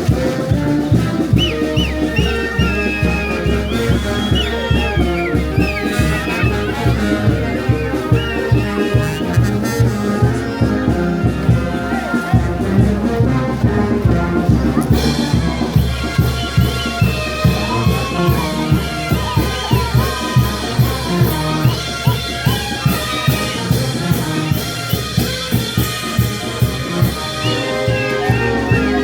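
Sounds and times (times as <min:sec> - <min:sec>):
brass band horns: 0:00.0 - 0:29.0
steady drum beat: 0:00.0 - 0:29.0.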